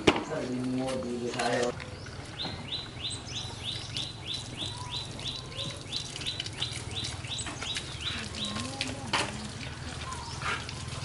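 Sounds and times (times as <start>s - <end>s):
bird chirping: 0.2s - 8.8s.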